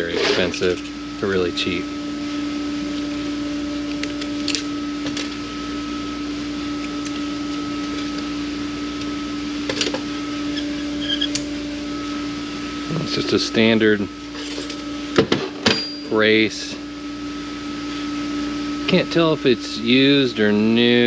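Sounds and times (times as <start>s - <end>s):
machine hum: 0.0s - 21.0s
metal parts clicking and clinking: 0.2s - 1.0s, 3.9s - 5.4s, 14.3s - 14.8s.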